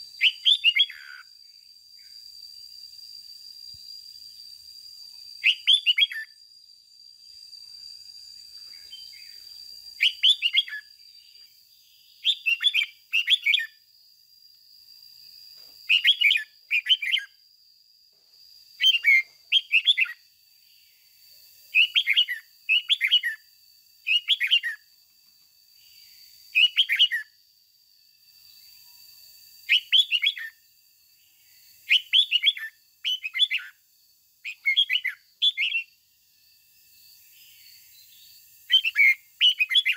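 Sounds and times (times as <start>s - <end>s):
bird singing short phrases: 0.2s - 1.3s, 5.4s - 6.4s, 10.0s - 13.8s, 15.9s - 17.4s, 18.8s - 20.2s, 21.7s - 23.4s, 24.0s - 24.8s, 26.5s - 27.3s, 29.7s - 30.6s, 31.9s - 33.8s, 34.4s - 35.9s, 38.2s - 39.9s.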